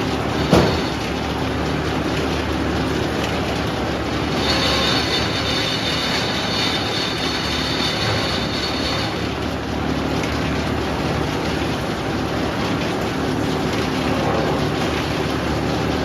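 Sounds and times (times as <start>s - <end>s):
sawmill sawing log: 3.9s - 11.9s.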